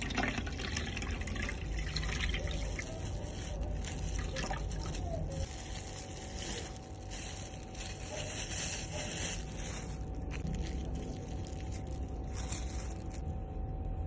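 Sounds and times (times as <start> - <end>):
dripping: 0.0 - 5.0
liquid pouring and trickling: 0.0 - 6.2.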